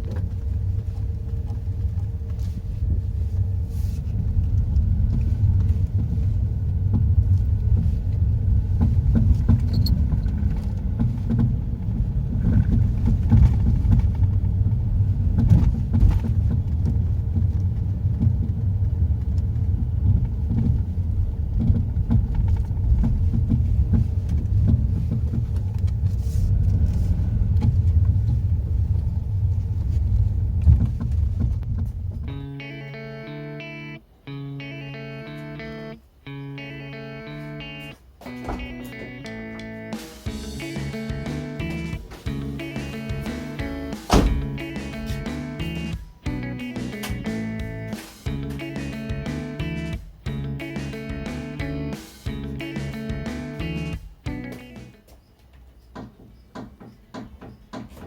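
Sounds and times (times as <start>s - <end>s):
car road rumble: 0.0s - 58.0s
knocks: 55.9s - 58.0s.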